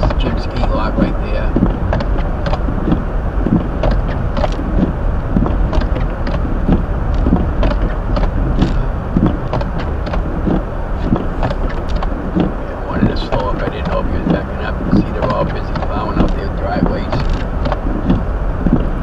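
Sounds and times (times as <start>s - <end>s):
tyre and engine rumble: 0.0s - 19.0s
short ticks and knocks: 1.5s - 12.6s.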